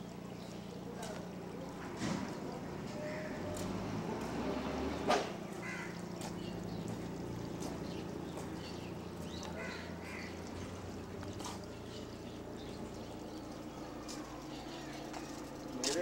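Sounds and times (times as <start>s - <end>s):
steady low hum: 0.0s - 16.0s
bird caws: 2.9s - 3.6s, 5.5s - 6.8s, 8.7s - 12.2s.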